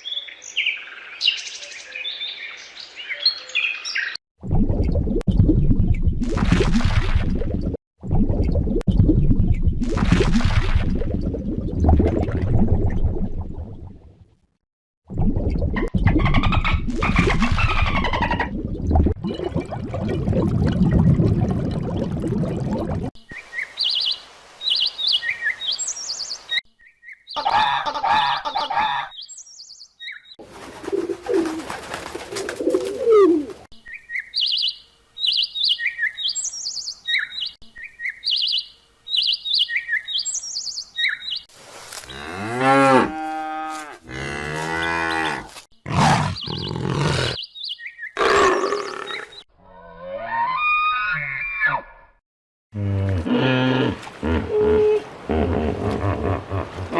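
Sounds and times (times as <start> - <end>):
small birds chirping: 29.1 - 30.4, 33.8 - 41.5, 45.9 - 49.5
cattle mooing: 42.1 - 47.4.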